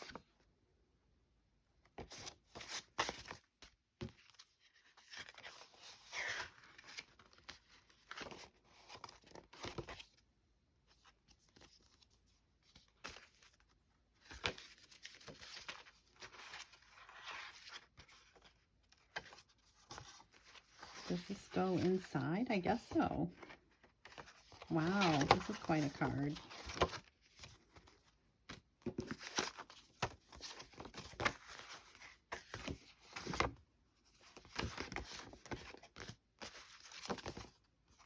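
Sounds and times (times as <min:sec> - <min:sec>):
paper cards rustling: 0:14.2 - 0:33.5.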